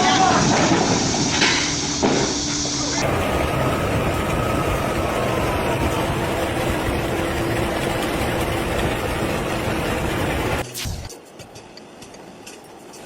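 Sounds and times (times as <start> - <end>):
vehicle engine and road rumble: 3.0 - 13.0.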